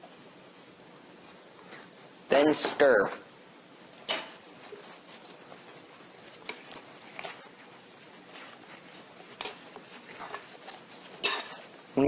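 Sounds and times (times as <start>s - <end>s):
utensil stirring wet batter: 3.9s - 12.0s.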